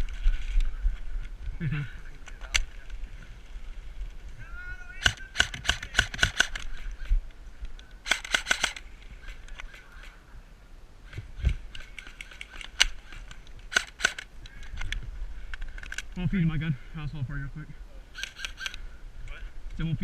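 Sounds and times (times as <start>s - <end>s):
airsoft guns firing: 5.0s - 6.8s, 8.0s - 8.9s, 11.8s - 14.3s.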